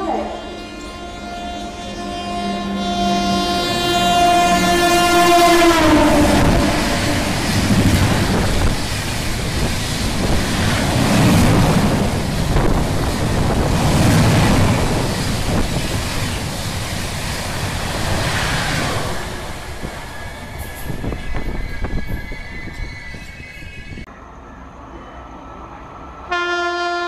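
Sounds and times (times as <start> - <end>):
express train rushing past: 0.0 - 27.0
wind buffeting microphone: 5.9 - 24.1.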